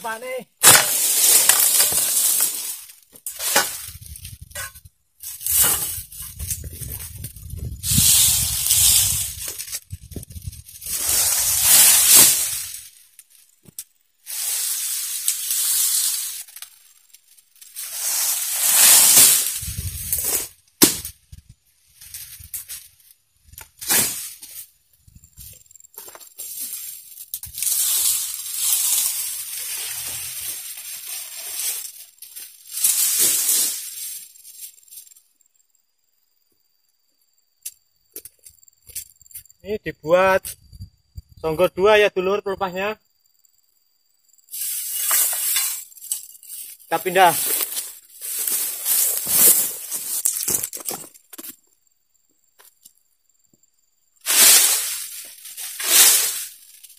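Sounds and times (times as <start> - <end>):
dry palm fronds rustling: 0.1 - 13.6, 14.3 - 35.2, 44.5 - 51.6, 54.2 - 56.9
fronds snapping: 0.6 - 4.3.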